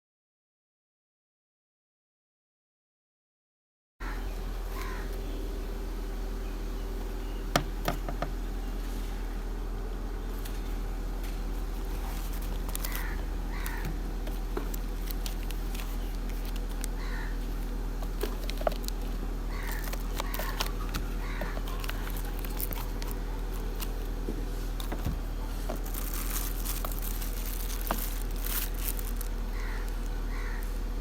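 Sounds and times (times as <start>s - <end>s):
birds calling: 4.0s - 31.0s
low hum: 4.0s - 31.0s.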